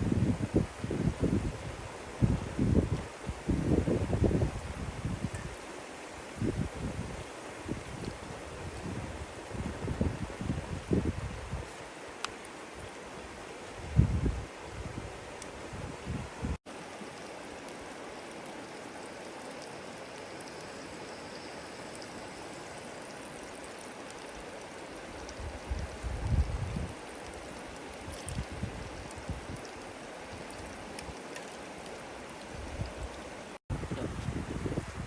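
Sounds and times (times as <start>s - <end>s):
wind rumble on microphone: 0.0s - 5.6s, 6.3s - 11.8s, 13.8s - 16.6s, 25.3s - 29.7s, 32.5s - 35.0s
flowing water rushing: 0.0s - 15.8s, 16.5s - 35.0s.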